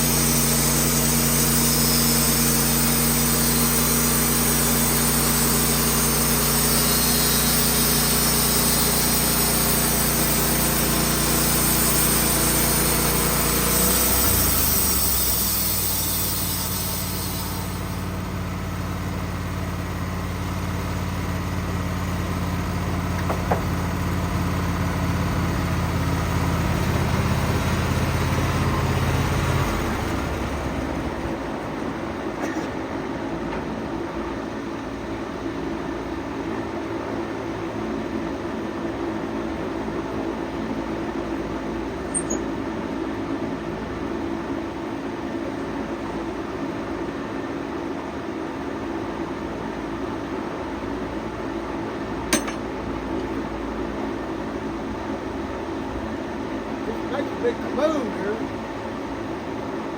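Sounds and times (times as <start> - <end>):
band saw cutting wood hiss: 0.0 - 18.8
sawmill engine running: 0.0 - 59.9.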